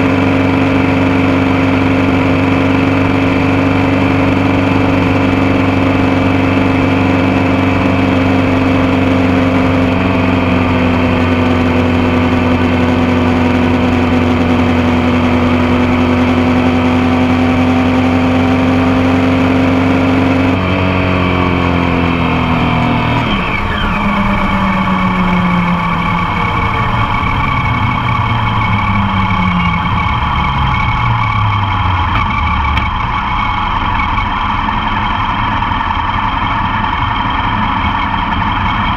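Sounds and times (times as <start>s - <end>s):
motorcycle engine cruising: 0.0s - 38.9s
wind and road noise: 0.0s - 38.9s.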